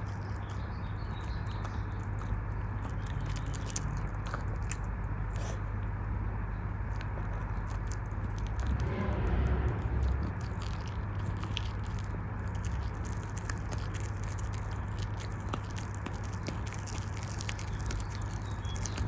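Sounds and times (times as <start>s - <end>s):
dog chewing a bone: 0.0s - 5.9s, 6.8s - 8.8s, 10.0s - 19.0s
low hum: 8.2s - 14.5s.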